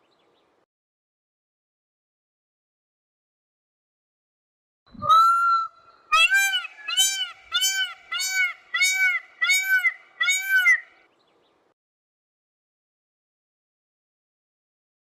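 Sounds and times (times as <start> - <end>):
bird calling: 5.0 - 11.1.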